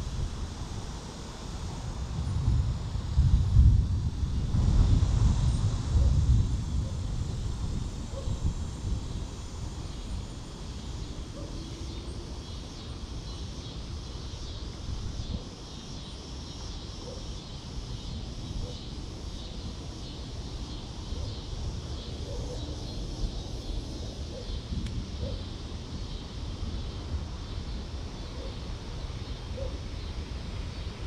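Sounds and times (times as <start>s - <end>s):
wind buffeting microphone: 0.0s - 10.6s
steady high hiss: 0.0s - 31.0s.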